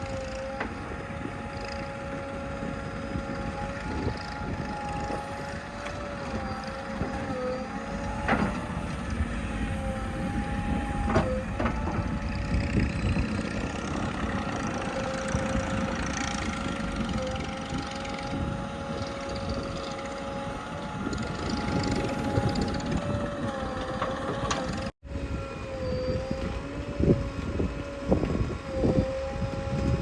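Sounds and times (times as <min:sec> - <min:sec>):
backhoe diesel engine running: 0:00.0 - 0:25.0
steady whine: 0:00.0 - 0:30.0.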